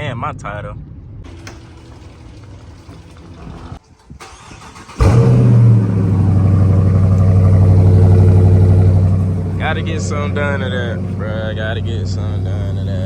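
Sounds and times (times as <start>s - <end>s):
car engine starting and idling: 0.0s - 13.0s.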